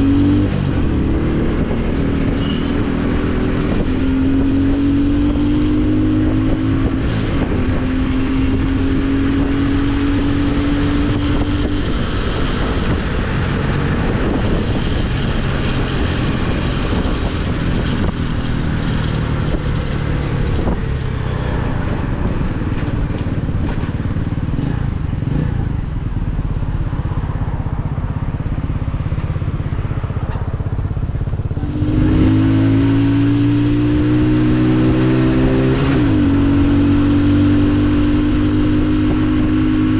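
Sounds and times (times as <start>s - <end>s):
motorcycle engine accelerating: 0.0s - 39.9s
wind and road noise: 0.0s - 39.9s.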